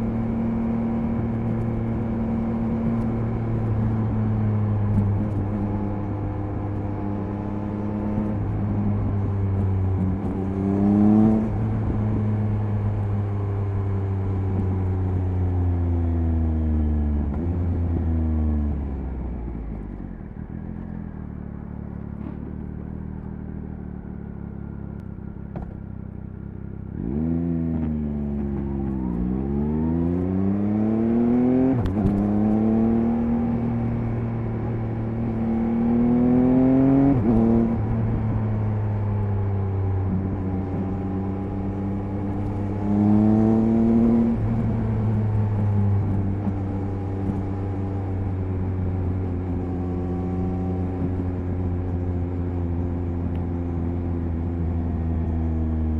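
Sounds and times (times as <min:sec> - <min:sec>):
motorcycle engine revving: 0:26.5 - 0:55.9.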